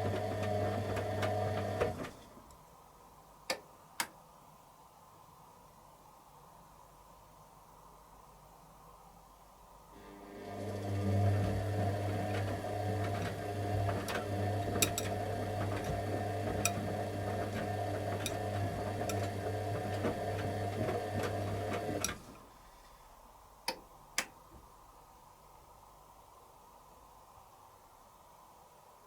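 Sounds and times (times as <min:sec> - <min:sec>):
washing machine motor hum: 0:00.0 - 0:02.2, 0:10.0 - 0:22.5.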